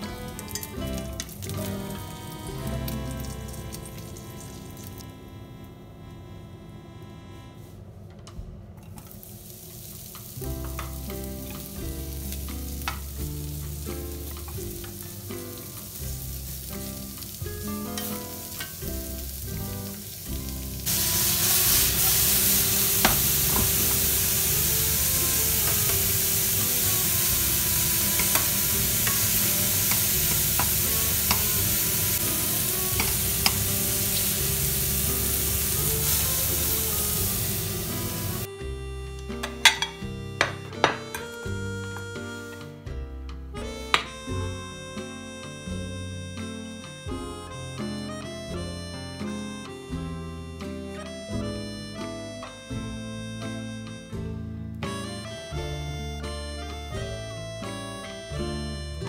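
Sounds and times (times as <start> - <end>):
mushrooms sizzling in oil: 0.0 - 5.0, 9.0 - 38.5.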